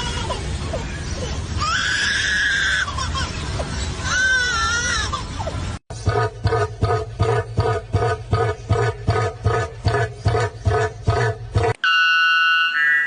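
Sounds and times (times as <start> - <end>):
steady low rumble: 2.6 - 11.8.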